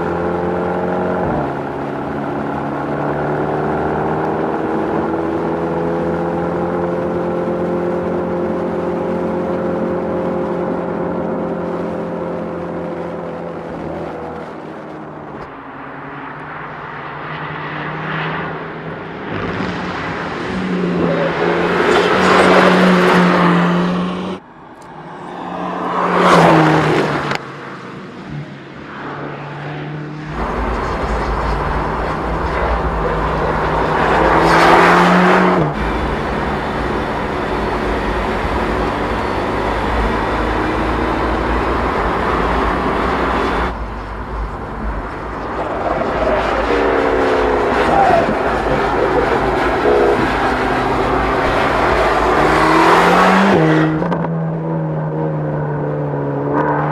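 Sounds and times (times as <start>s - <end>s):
race car passing: 15.6s - 56.9s.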